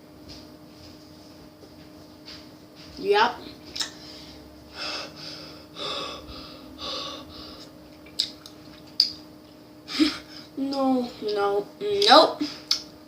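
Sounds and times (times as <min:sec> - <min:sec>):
person breathing: 0:03.9 - 0:07.7.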